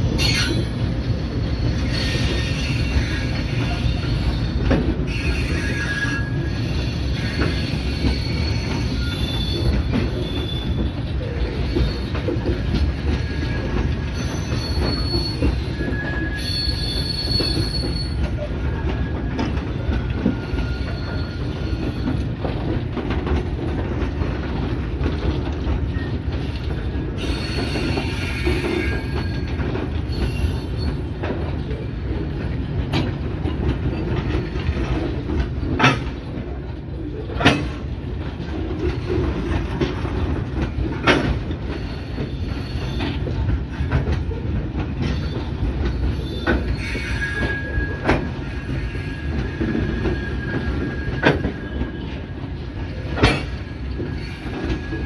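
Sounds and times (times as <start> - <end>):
high-pitched wheel squeals: 0.2 - 0.7, 1.4 - 12.2, 13.1 - 22.2, 27.2 - 31.1, 45.1 - 52.4.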